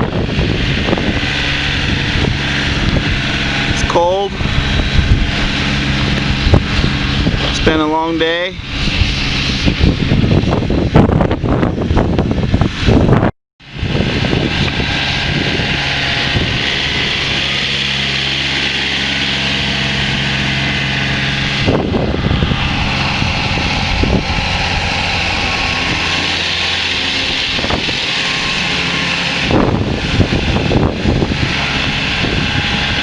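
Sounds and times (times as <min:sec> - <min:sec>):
snowplow engine running: 0:00.0 - 0:33.0.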